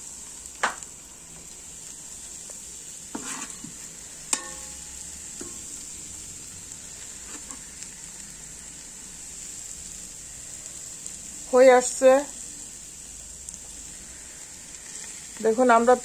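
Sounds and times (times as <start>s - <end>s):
food sizzling in a pot: 0.0s - 16.0s
utensil scraping and knocking pot: 3.1s - 5.7s.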